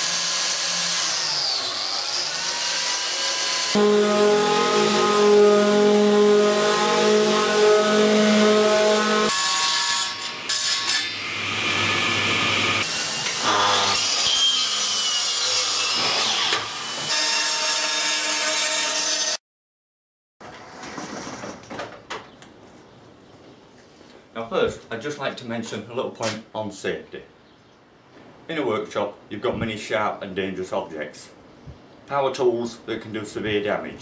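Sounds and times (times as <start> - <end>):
power tools cutting and sanding wood: 0.0 - 19.4.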